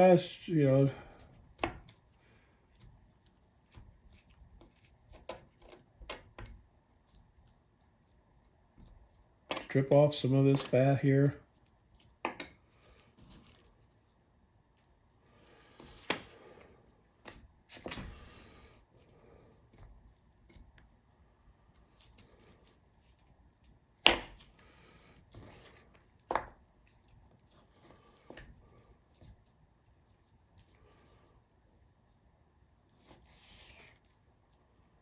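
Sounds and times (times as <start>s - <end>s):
knife scraping chicken: 33.0s - 34.2s.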